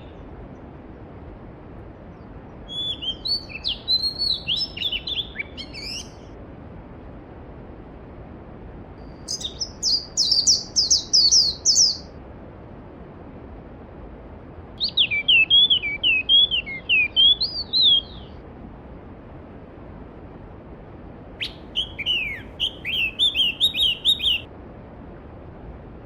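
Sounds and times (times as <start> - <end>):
songbird singing whistled notes: 2.7 - 6.3, 9.0 - 12.2, 14.8 - 18.4, 21.4 - 24.5.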